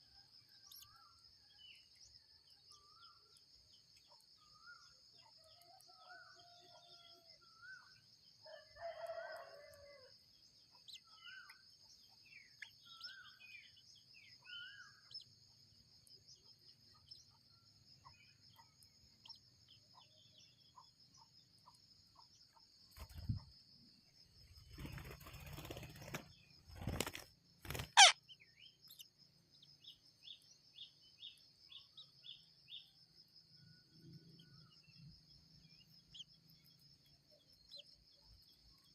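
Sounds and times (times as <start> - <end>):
bird chirps and calls: 10.8 - 15.3, 27.7 - 29.1
high insect buzz: 24.8 - 28.6
quick repeated chirps: 27.6 - 28.3.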